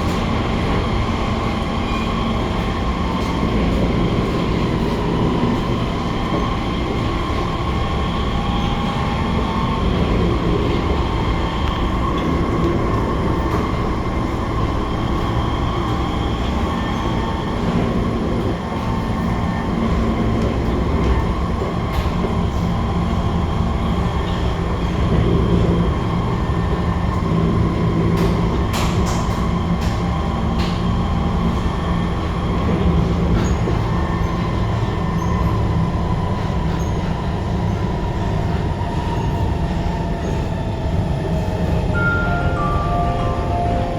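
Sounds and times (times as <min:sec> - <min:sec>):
wheels rumbling on rail: 0:00.0 - 0:43.9.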